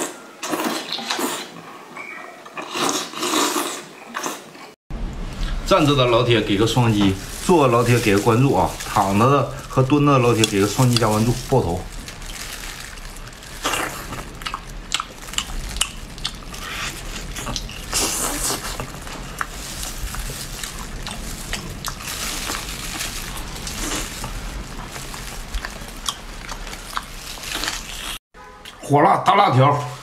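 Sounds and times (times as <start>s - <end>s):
person chewing wet food: 10.3s - 28.8s.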